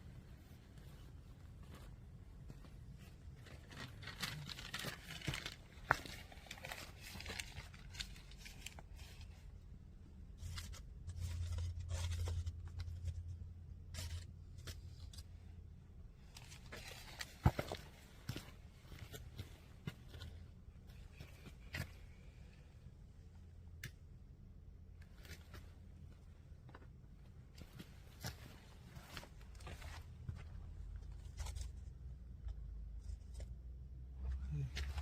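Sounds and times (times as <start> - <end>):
kindling and paper crackling: 3.2 - 9.4.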